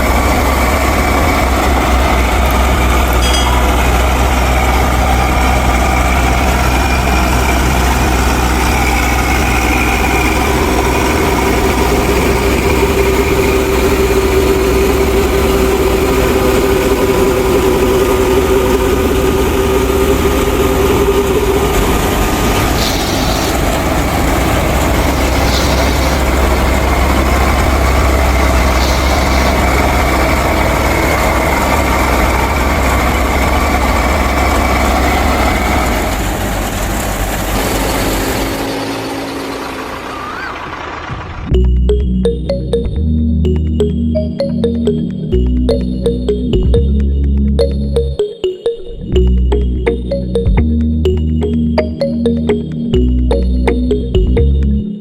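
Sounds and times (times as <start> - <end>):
miniature thresher machine running: 0.0 - 41.5
higher tone: 1.8 - 34.0, 41.5 - 54.9.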